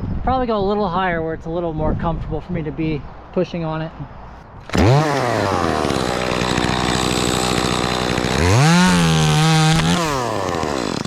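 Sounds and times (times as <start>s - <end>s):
chainsaw cutting wood: 4.6s - 11.0s.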